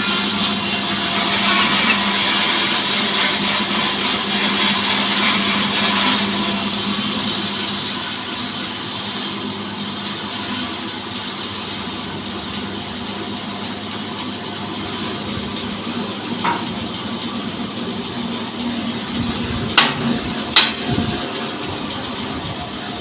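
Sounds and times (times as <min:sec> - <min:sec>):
petrol engine running: 0:00.0 - 0:23.0
sharp knocks: 0:19.7 - 0:21.1.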